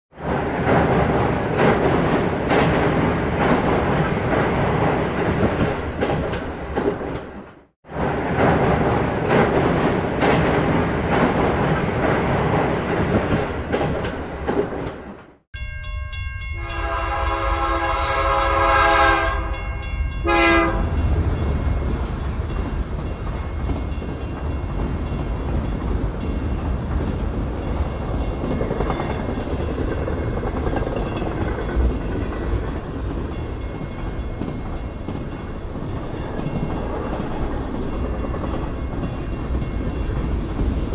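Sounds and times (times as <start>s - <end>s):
freight train rumble and wheel clatter: 0.1s - 40.9s
train horn blasts: 16.6s - 21.0s.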